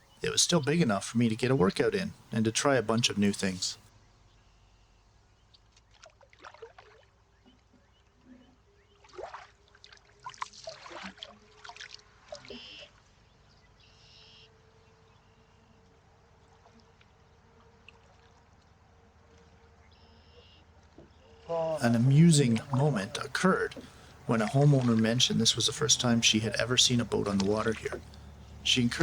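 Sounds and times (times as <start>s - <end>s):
paddle splashing in water: 9.0s - 12.8s, 21.8s - 29.0s
water dripping off paddle: 21.8s - 29.0s.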